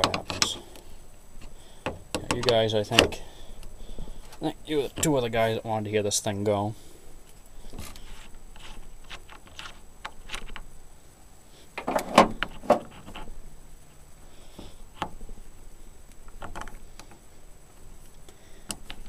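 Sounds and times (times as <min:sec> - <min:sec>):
clicks and knocks of handling: 0:00.0 - 0:04.4, 0:07.3 - 0:10.7, 0:16.1 - 0:17.2.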